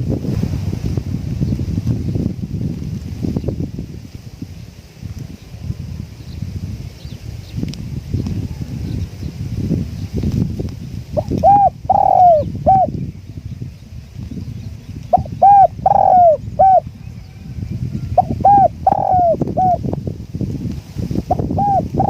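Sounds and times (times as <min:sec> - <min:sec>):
wind buffeting microphone: 0:00.0 - 0:22.0
dove cooing: 0:11.2 - 0:12.9, 0:15.1 - 0:16.9, 0:18.1 - 0:19.8, 0:21.3 - 0:22.0.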